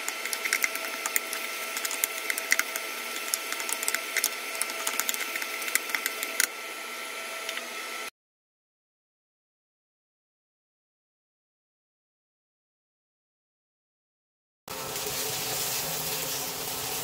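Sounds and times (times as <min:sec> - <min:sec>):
egg and onion sizzling in oil: 0:00.0 - 0:08.0, 0:14.7 - 0:17.0.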